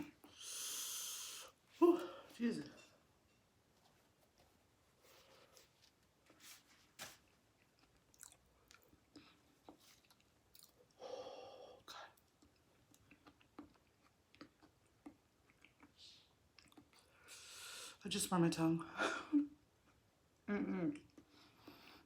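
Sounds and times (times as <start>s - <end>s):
wet chewing: 7.5s - 11.0s, 12.2s - 17.0s.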